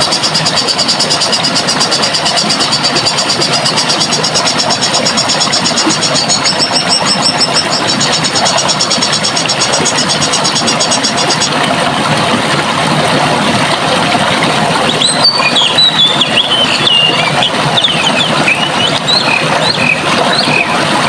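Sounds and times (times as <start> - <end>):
water rushing: 0.0 - 21.0
high rapid trilling call: 15.0 - 20.7.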